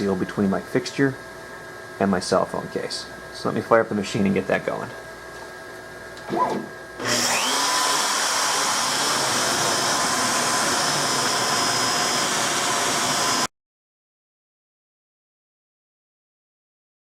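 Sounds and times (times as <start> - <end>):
router spindle whining: 7.0 - 13.5.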